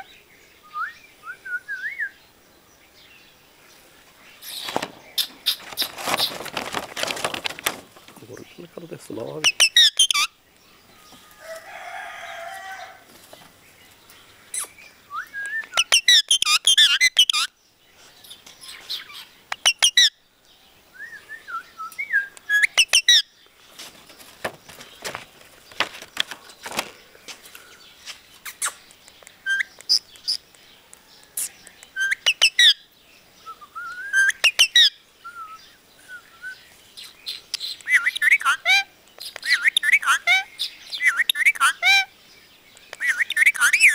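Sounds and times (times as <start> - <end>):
rustles: 2.8 - 9.7, 10.5 - 15.9, 20.4 - 32.4, 33.0 - 41.1
parrot chirping and whistling: 9.4 - 10.3, 14.6 - 17.5.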